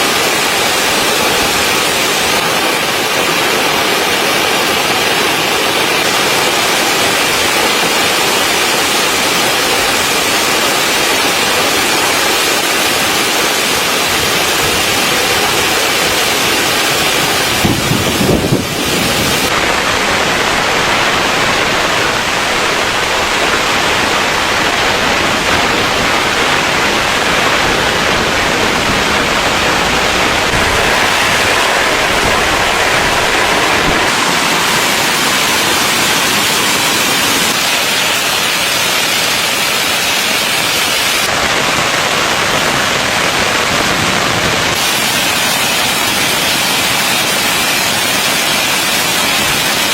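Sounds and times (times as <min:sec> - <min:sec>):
rain falling on a tent: 0:00.0 - 0:49.9.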